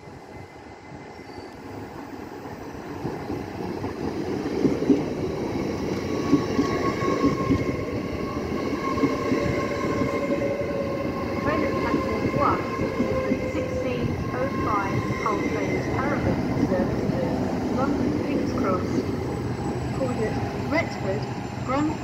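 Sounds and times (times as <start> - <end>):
train pulling in: 0.0 - 22.0.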